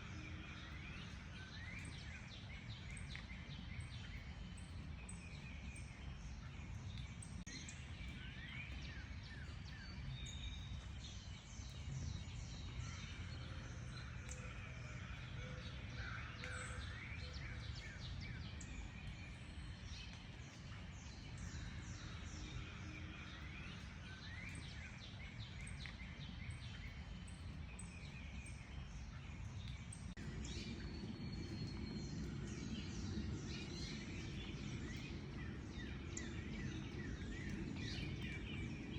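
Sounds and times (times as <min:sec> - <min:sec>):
songbirds chirping and trilling: 0:00.0 - 0:38.9
low background rumble: 0:28.3 - 0:38.9.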